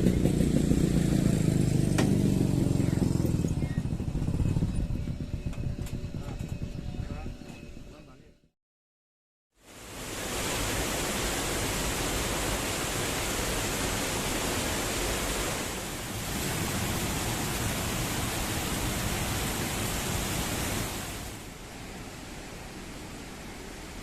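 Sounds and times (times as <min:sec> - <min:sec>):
waterfall rushing: 0:09.6 - 0:24.0.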